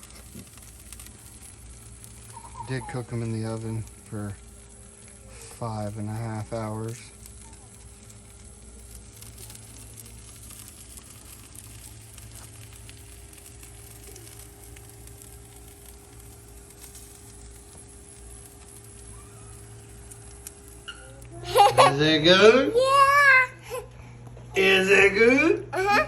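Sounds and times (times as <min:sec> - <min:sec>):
ribs crackling on a grill: 0:00.0 - 0:26.0
steady low hum: 0:00.0 - 0:26.0.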